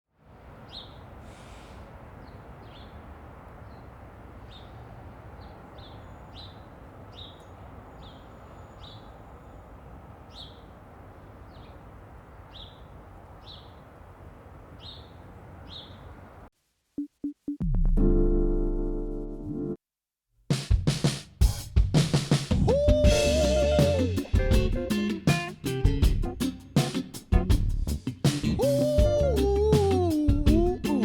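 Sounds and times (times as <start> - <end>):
low outdoor rumble and hiss: 0.2 - 16.5
bird chirping: 0.4 - 16.5.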